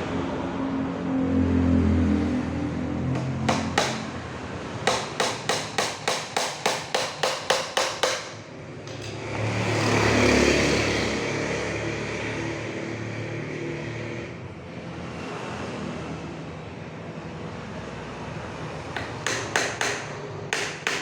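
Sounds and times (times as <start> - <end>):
motor vehicle passing: 0.0 - 5.2, 8.5 - 16.7
hammer nailing wooden crate: 3.1 - 9.3, 19.0 - 21.0.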